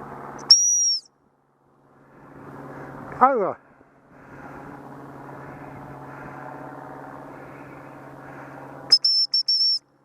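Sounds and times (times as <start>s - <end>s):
low mechanical hum: 0.0s - 10.0s
shrill dog whistle blast: 0.4s - 1.1s, 8.9s - 9.8s.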